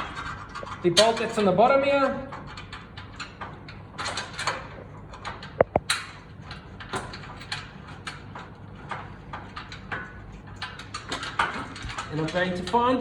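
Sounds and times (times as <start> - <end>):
metal bolt clicks and knocks: 6.8 - 12.8.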